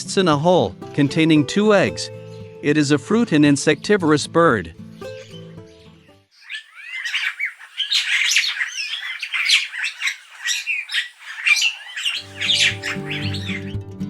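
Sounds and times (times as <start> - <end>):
starlings calling: 6.3 - 13.8.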